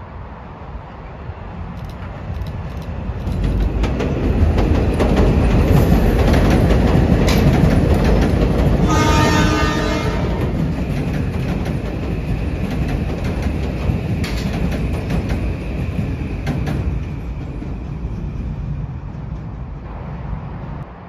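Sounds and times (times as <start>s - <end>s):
electric train rumbling past: 0.0s - 21.0s
wheels clicking over rail joints: 1.7s - 8.9s, 10.2s - 19.7s.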